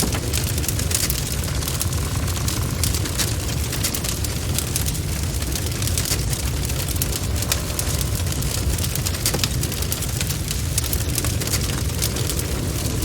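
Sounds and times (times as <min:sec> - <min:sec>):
rumble of flames: 0:00.0 - 0:13.0
wood crackling and popping: 0:00.0 - 0:13.0.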